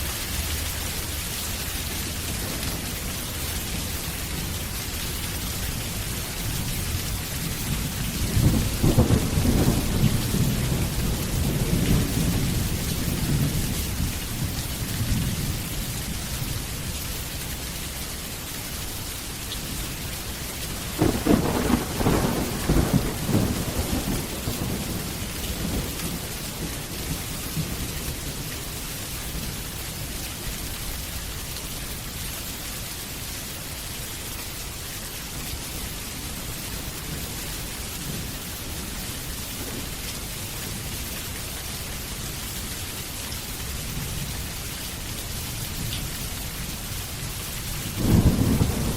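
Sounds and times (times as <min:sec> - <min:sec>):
steady rain: 0:00.0 - 0:48.9
thunder rolling: 0:08.3 - 0:13.6, 0:20.9 - 0:27.8, 0:48.0 - 0:48.9.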